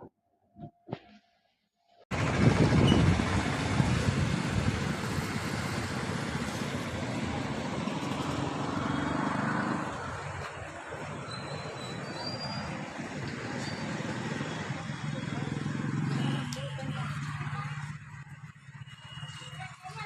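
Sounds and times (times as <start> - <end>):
train rumbling on rails: 2.1 - 8.5.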